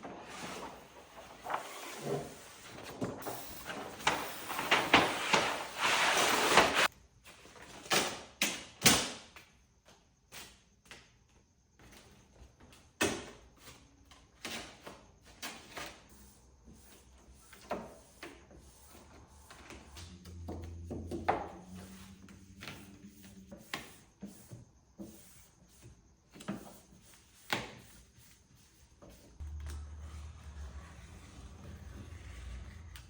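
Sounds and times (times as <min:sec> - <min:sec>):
brief low hum: 0:29.4 - 0:33.0.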